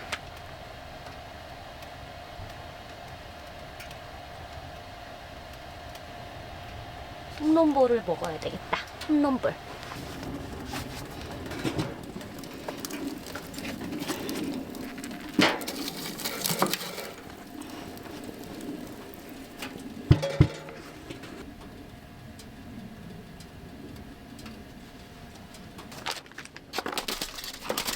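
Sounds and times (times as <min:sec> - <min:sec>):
handling clicks and rustles: 0:07.4 - 0:21.8, 0:24.3 - 0:27.9
sharp knocks: 0:20.1 - 0:21.2.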